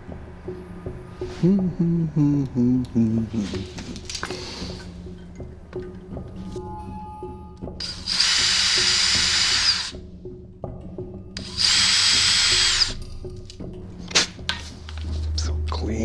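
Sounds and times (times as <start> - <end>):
background music with steady beat: 0.0 - 16.0
power tool motor whine: 7.8 - 9.9, 11.4 - 13.0.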